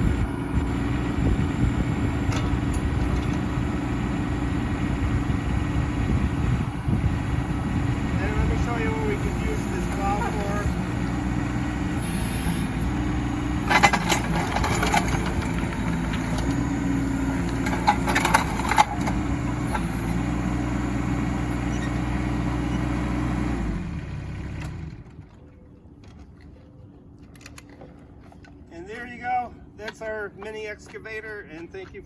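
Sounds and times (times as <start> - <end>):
excavator engine running: 0.0 - 25.4
metal clanks: 2.3 - 3.4, 13.6 - 16.6, 17.4 - 19.9.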